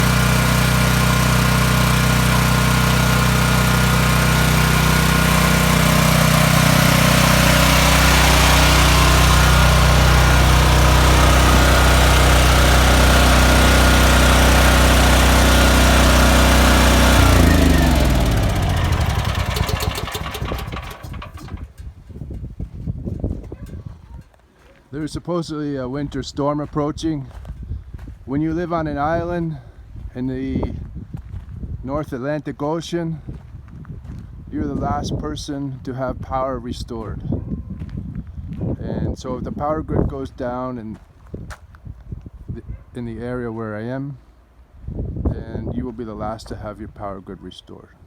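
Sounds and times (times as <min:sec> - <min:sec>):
generator engine running: 0:00.0 - 0:21.8.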